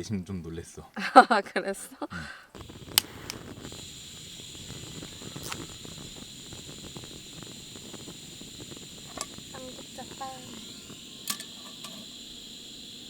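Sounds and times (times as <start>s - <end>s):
food sizzling in a frying pan: 2.6s - 13.0s
steady high tone: 4.1s - 13.0s.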